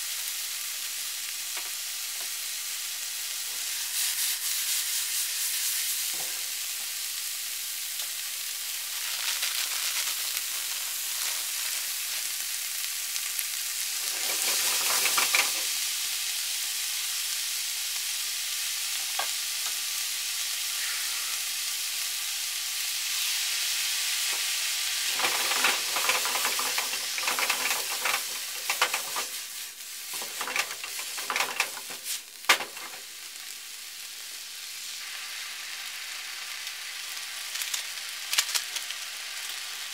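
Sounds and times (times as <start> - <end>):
noodles sizzling in a frying pan: 0.0 - 39.9
chopsticks clicking and scraping pan: 14.0 - 15.7, 25.1 - 33.1, 37.5 - 39.0.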